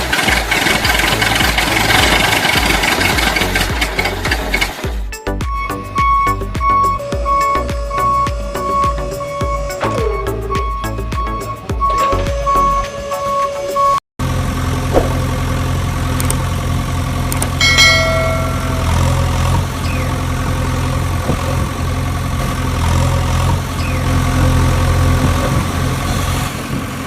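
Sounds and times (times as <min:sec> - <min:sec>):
engine idling: 0:00.0 - 0:11.6, 0:14.2 - 0:25.3
bell-like ding: 0:17.6 - 0:19.7.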